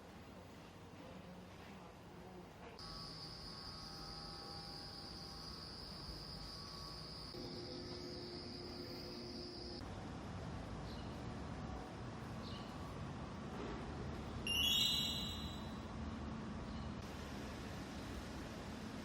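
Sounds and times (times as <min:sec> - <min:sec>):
low background noise: 0:00.0 - 0:19.0
steady high-pitched tone: 0:02.8 - 0:09.8, 0:14.5 - 0:15.9.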